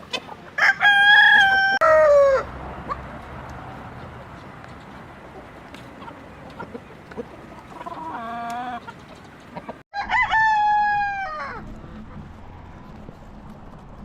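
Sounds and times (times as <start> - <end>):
rooster crowing: 0.6 - 2.6, 9.9 - 11.7.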